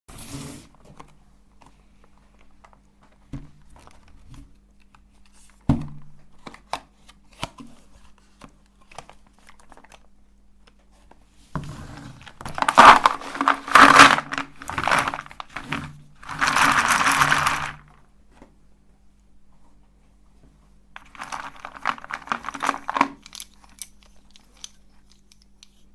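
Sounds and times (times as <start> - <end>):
meat grinder crunching chalk: 11.7 - 17.8, 21.0 - 23.8.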